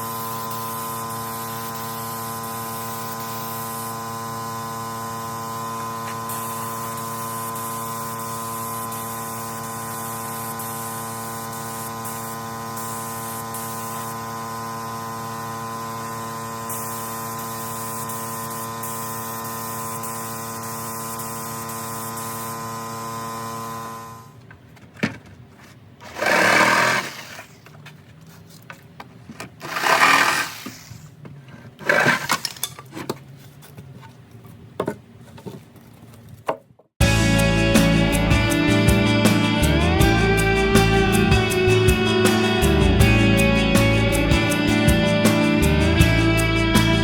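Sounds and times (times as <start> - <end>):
short hissing bursts: 0.0 - 4.0, 6.1 - 14.2, 16.7 - 22.7, 29.7 - 31.1
guitar music: 37.0 - 47.0.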